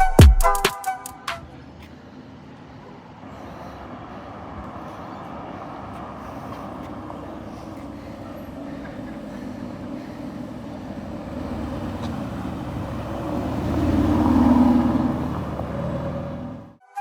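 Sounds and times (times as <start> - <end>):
car engine passing by: 1.4 - 16.8.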